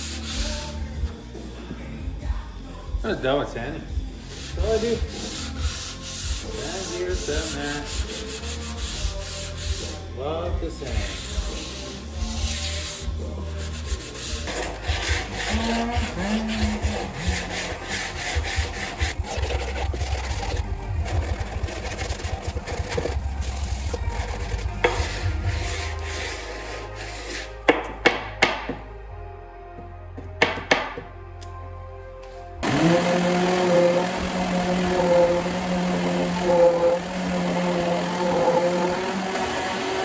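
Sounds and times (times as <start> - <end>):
sander scraping wood: 4.2 - 10.0, 10.8 - 27.8, 32.6 - 40.0
sharp knocks: 30.4 - 31.1.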